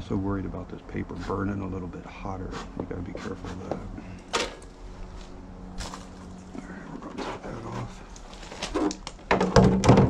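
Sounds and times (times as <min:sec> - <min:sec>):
bellows smoker puffs: 0:02.4 - 0:04.2.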